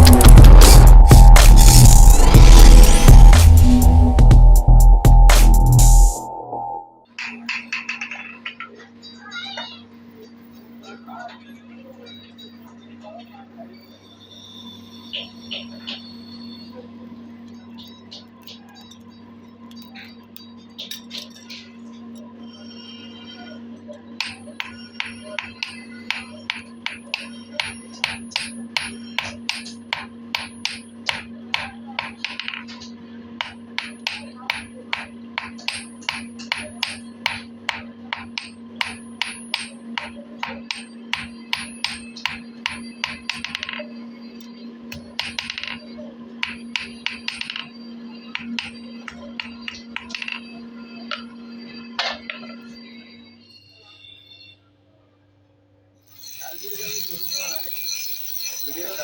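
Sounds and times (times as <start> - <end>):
hammer striking steel: 33.4 - 43.8.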